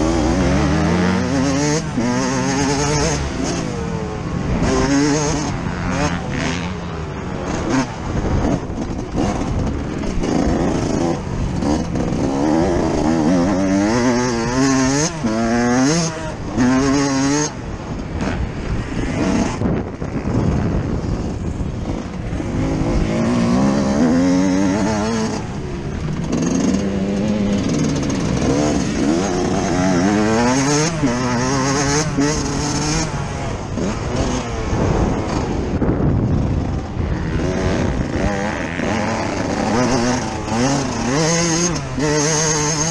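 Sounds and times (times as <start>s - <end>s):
motocross engine revving: 0.0s - 42.9s.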